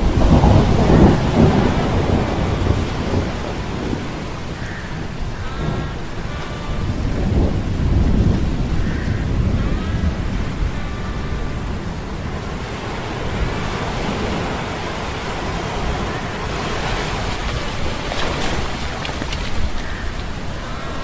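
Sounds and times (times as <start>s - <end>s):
waves and wind rushing: 0.0s - 21.0s.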